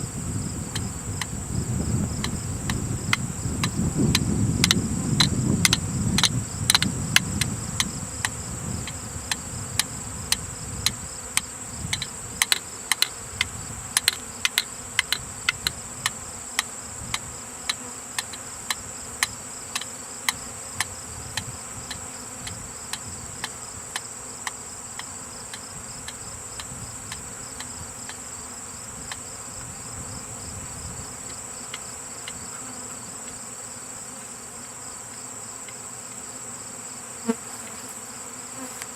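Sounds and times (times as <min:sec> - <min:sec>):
high insect trill: 0:00.0 - 0:38.9
honeybees buzzing: 0:00.0 - 0:38.9
sharp ticks: 0:02.2 - 0:28.2.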